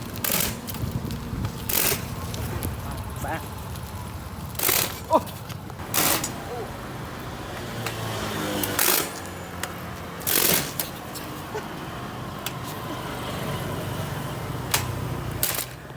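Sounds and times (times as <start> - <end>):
bicycle chain clunks: 0.0 - 2.9, 4.4 - 6.6, 7.8 - 11.4, 14.6 - 15.9
bicycle drivetrain clicking: 0.0 - 15.9.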